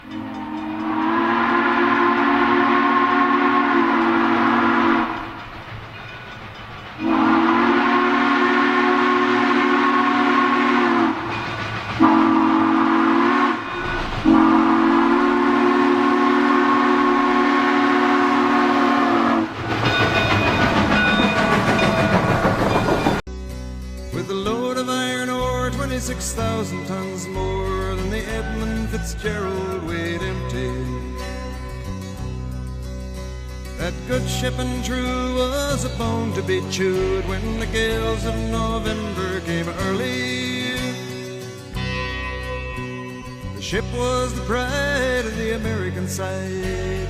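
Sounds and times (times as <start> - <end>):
model train horn blasts: 0.0 - 5.4, 7.0 - 11.3, 12.0 - 19.6
model train running rumble: 0.0 - 23.2, 24.3 - 41.9, 43.6 - 47.0.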